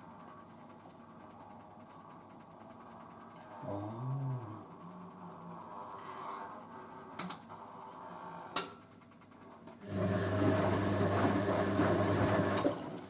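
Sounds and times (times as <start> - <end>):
low machine hum: 0.0 - 13.0
water rushing through machine: 9.9 - 13.0.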